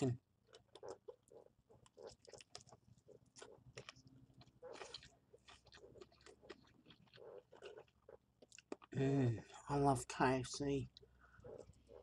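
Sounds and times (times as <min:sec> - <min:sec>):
person chewing fried chicken: 0:00.4 - 0:09.6.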